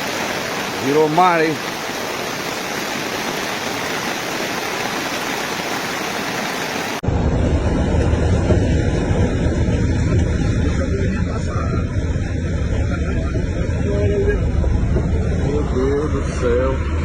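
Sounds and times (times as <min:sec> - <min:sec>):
floodwater rushing: 0:00.0 - 0:07.0
low rumble: 0:07.0 - 0:17.0.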